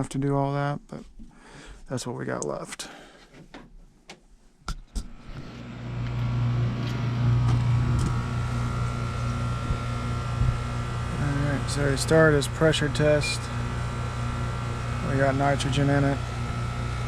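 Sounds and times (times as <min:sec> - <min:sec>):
motor humming: 0:05.0 - 0:17.0.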